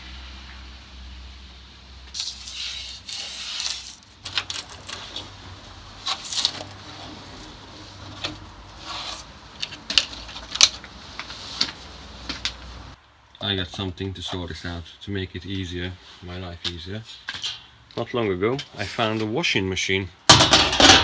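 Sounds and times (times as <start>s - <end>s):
scraping on metal: 2.2s - 13.0s
metallic clinks and knocks: 3.8s - 5.6s.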